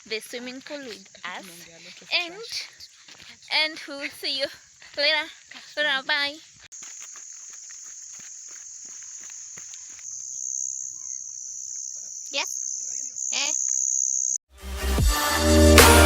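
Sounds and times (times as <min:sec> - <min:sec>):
crickets trilling: 0:00.0 - 0:14.4
short falling calls: 0:09.2 - 0:14.4.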